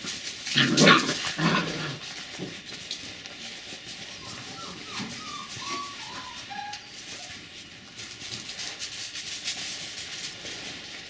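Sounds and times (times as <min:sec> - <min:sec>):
rustling hiss: 0:00.0 - 0:11.0
puppy whimpering: 0:04.1 - 0:07.5.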